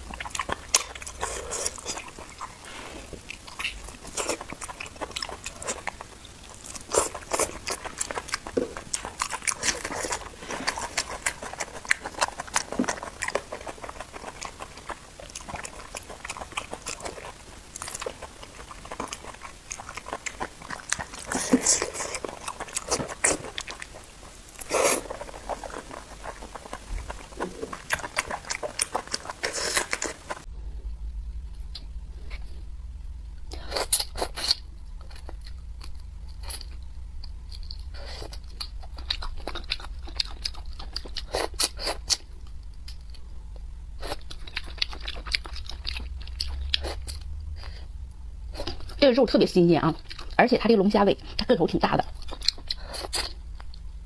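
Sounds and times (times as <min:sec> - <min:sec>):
chewing with wet mouth clicks: 0:00.0 - 0:30.5, 0:33.5 - 0:47.8, 0:49.9 - 0:50.4, 0:51.2 - 0:53.9.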